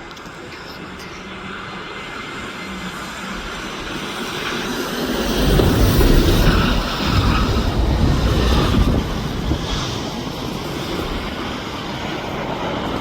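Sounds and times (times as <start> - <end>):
plane passing: 0.2 - 13.0
wind buffeting microphone: 1.2 - 13.0.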